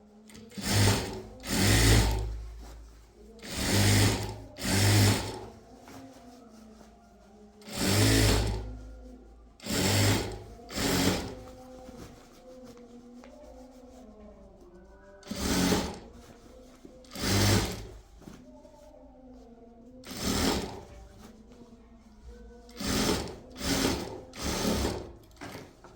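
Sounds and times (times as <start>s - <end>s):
sewing machine stitching: 0.3s - 2.7s, 3.4s - 5.6s, 7.6s - 8.8s, 9.6s - 11.6s, 15.2s - 16.3s, 17.0s - 18.0s, 20.0s - 21.0s, 22.7s - 25.8s.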